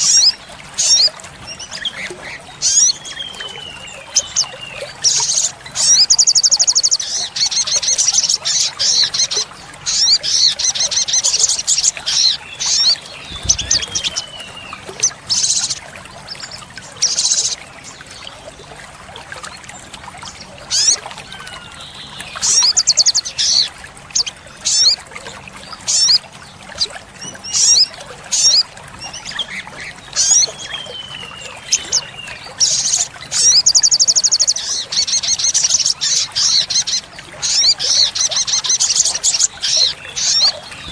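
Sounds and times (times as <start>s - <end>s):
bird singing high trills: 9.0s - 15.8s.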